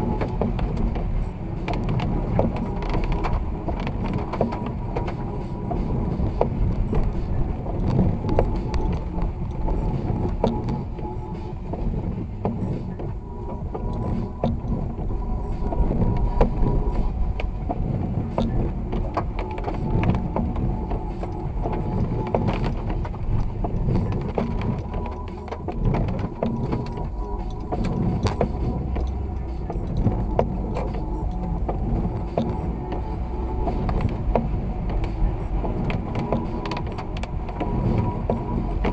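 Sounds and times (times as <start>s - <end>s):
car road rumble in snow: 0.0s - 38.9s.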